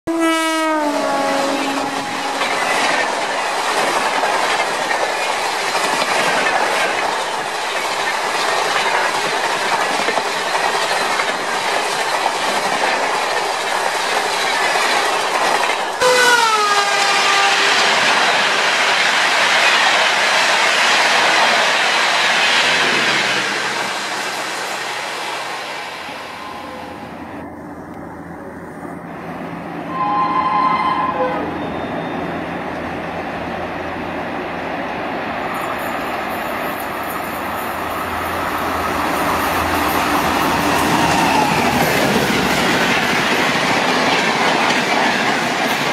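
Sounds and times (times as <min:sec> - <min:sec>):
locomotive horn blast: 0:00.1 - 0:02.6, 0:16.0 - 0:18.0, 0:29.9 - 0:32.0
train coaches rattling over rails: 0:00.8 - 0:45.9.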